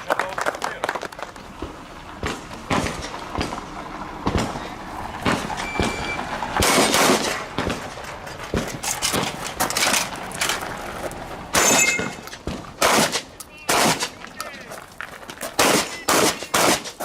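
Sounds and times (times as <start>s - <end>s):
shotgun shots: 2.2s - 3.6s, 6.6s - 7.9s, 11.5s - 14.2s, 15.6s - 17.0s.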